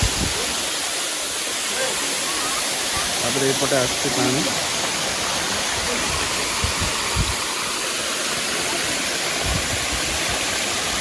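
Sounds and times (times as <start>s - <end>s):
wind thumps on microphone: 0.0s - 0.4s, 6.0s - 7.5s, 9.4s - 10.3s
waterfall roaring: 0.0s - 11.0s.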